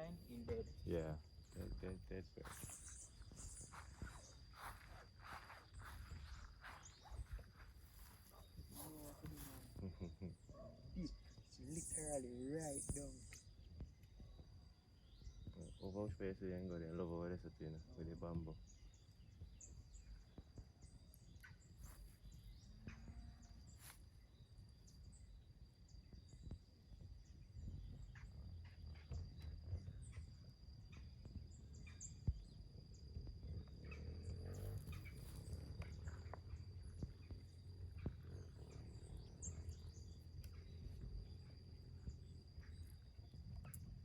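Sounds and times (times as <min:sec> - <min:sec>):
bird chirps: 0:01.5 - 0:16.7, 0:30.9 - 0:44.0.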